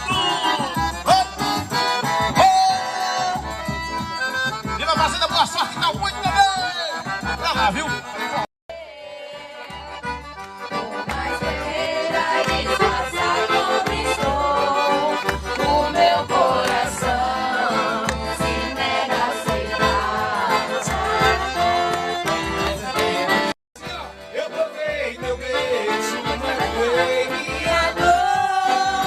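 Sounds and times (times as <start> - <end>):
accordion music: 0.0 - 29.0.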